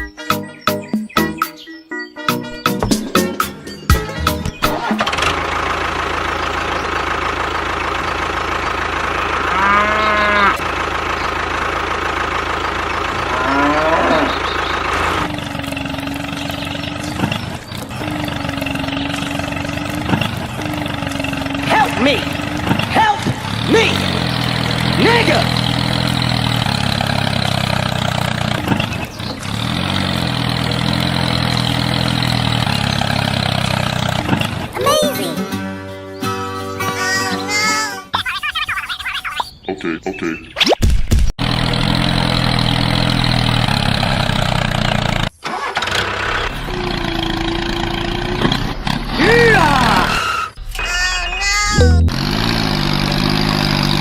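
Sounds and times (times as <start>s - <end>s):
steady engine-like hum: 3.5s - 34.8s, 46.0s - 54.0s
cow mooing: 9.4s - 10.6s, 13.2s - 14.5s.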